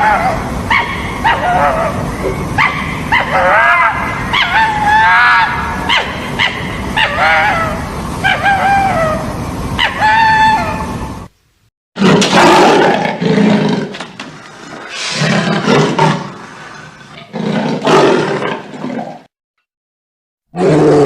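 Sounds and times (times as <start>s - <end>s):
large animal roaring: 12.0s - 14.0s, 14.6s - 19.3s, 20.6s - 21.0s.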